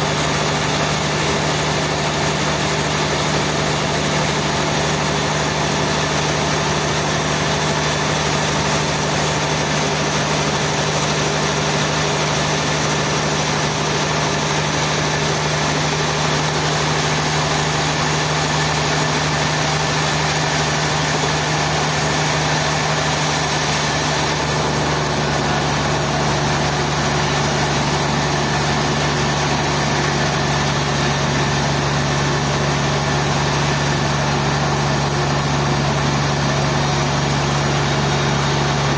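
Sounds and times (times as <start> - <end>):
sawmill machinery engine droning: 0.0 - 38.9.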